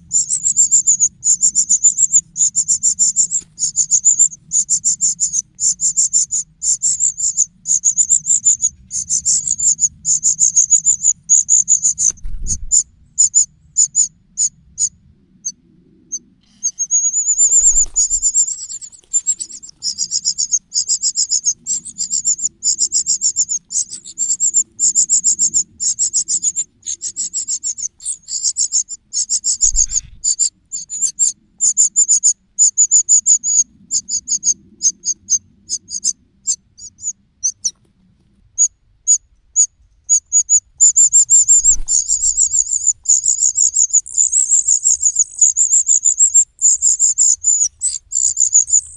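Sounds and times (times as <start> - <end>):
chick begging calls: 16.5 - 31.0, 40.4 - 48.9.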